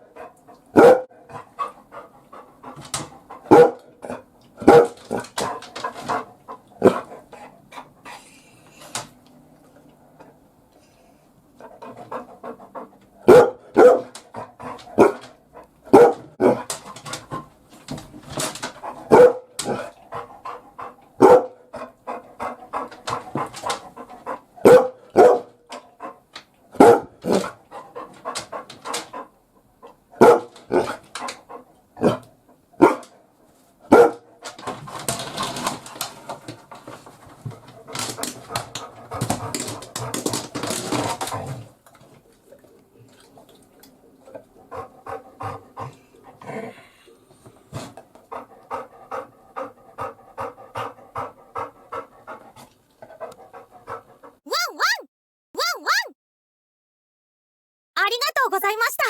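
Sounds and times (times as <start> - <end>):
dog barking: 0.8 - 1.1, 3.5 - 3.8, 4.6 - 5.0, 13.3 - 14.1, 15.0 - 15.2, 15.9 - 16.6, 19.1 - 19.5, 21.2 - 21.6, 24.6 - 25.5, 26.8 - 27.4, 30.2 - 30.9, 32.8 - 33.0, 33.9 - 34.2, 54.5 - 56.1.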